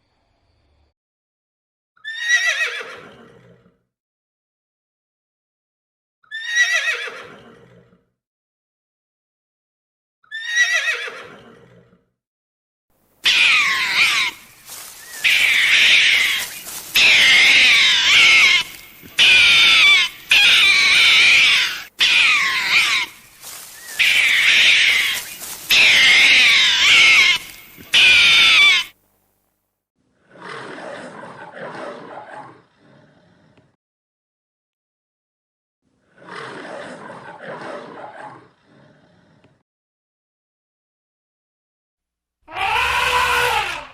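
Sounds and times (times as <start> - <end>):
horse whinnying: 2.0 - 3.7, 6.2 - 7.5, 10.2 - 12.0, 13.2 - 29.0, 42.5 - 43.9
shrill warbling animal call: 13.2 - 28.9, 42.5 - 43.9.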